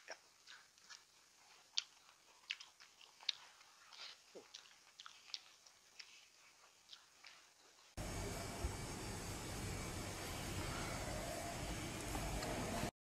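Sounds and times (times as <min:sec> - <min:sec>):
person chewing: 0:00.0 - 0:08.0.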